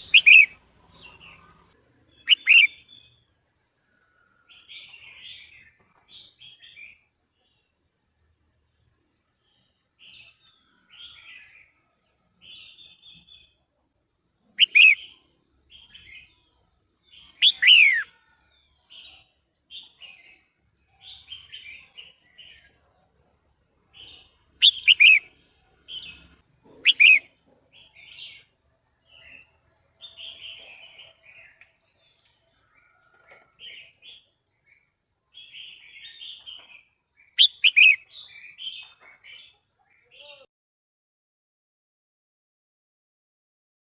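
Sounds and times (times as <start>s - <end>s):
bird chattering notes: 0.0s - 0.5s, 2.3s - 2.8s, 14.6s - 15.0s, 24.6s - 25.2s, 26.8s - 27.3s, 37.4s - 38.0s
sharp downward-slurring bird calls: 0.0s - 0.6s, 2.2s - 2.8s, 14.6s - 15.0s, 17.3s - 18.2s, 24.6s - 25.3s, 26.8s - 27.3s, 37.4s - 38.0s.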